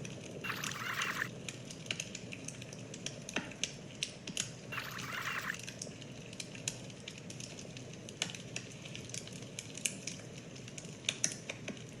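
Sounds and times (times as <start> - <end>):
wood fire crackling: 5.6 - 12.0.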